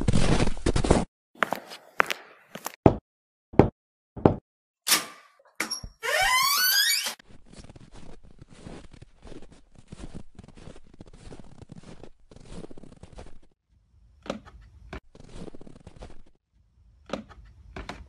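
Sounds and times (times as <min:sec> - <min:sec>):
knocking on a door: 0:03.6 - 0:04.4
door creaking open: 0:04.9 - 0:07.2.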